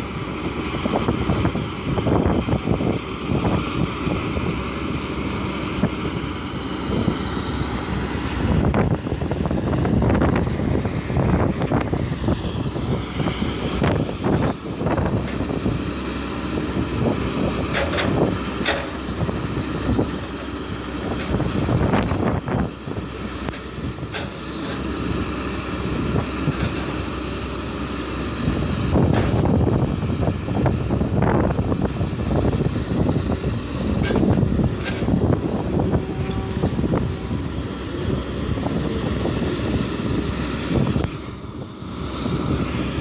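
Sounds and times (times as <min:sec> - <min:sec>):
excavator engine and hydraulics: 0:00.0 - 0:43.0.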